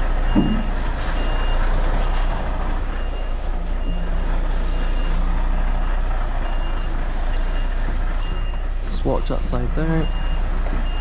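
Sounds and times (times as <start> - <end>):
diesel engine drone: 0.0 - 11.0
reversing alarm beeping: 0.2 - 11.0.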